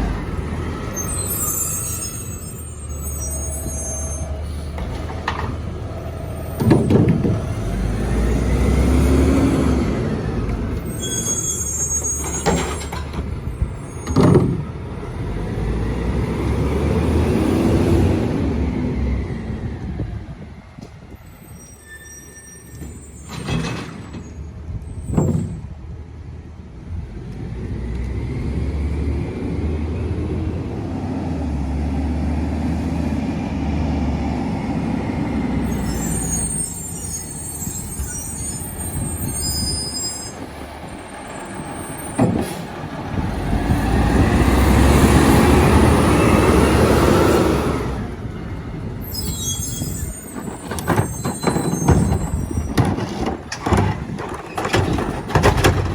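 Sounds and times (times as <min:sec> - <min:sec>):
garbage truck diesel engine revving: 0:00.0 - 0:19.8, 0:27.4 - 0:55.9
high squealing: 0:00.7 - 0:09.8, 0:10.7 - 0:14.4, 0:21.4 - 0:24.4, 0:35.6 - 0:42.7, 0:49.0 - 0:55.5.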